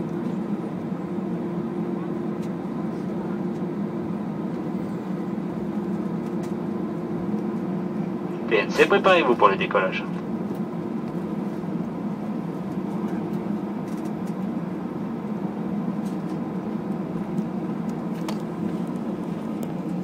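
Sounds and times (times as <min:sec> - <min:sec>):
airliner engines droning in cabin: 0:00.0 - 0:20.0.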